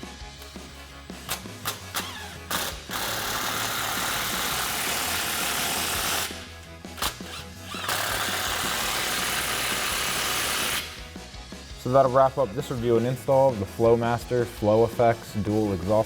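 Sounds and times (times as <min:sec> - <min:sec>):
power tool tightening nuts: 0:00.4 - 0:11.0.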